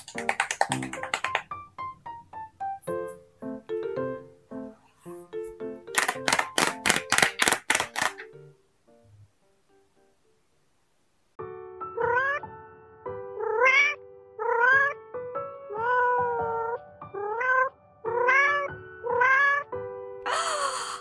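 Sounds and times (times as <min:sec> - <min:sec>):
background music with held tones: 0:00.0 - 0:10.8, 0:11.4 - 0:21.0
kitten mewing: 0:13.4 - 0:15.0, 0:15.7 - 0:19.6.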